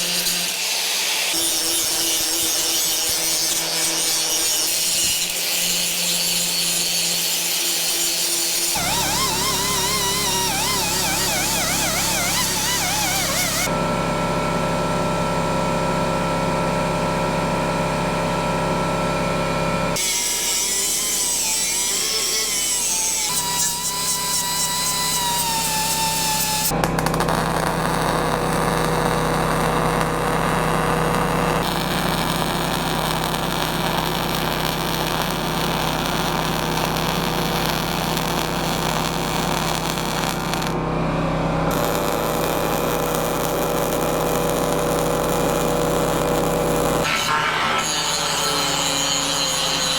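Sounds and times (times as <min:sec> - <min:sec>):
power tools working steel: 0:00.0 - 0:14.4, 0:19.9 - 0:49.9
grinding: 0:01.3 - 0:13.7.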